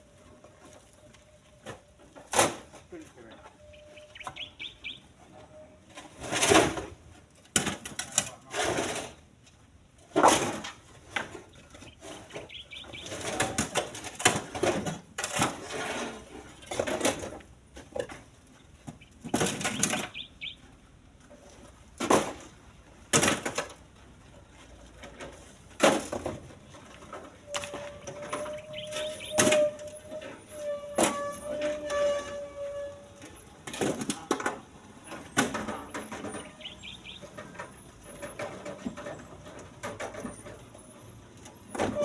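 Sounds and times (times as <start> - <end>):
stones knocking into steel truck bed: 10.1 - 11.4, 12.1 - 18.2, 22.0 - 23.8, 25.8 - 29.8.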